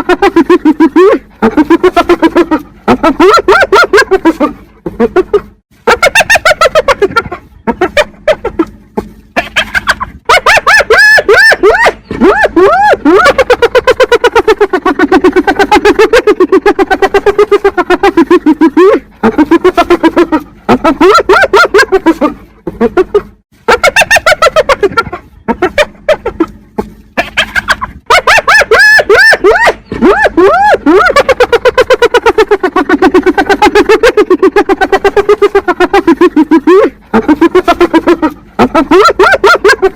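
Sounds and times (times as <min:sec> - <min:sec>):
hyena giggling: 0:00.0 - 0:39.9.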